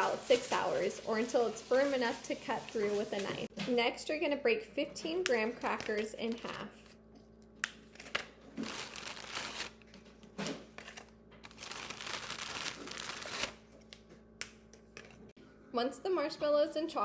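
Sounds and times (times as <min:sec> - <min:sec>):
crinkly wrapping rustling: 0:00.0 - 0:03.5, 0:07.9 - 0:10.0, 0:10.6 - 0:13.7.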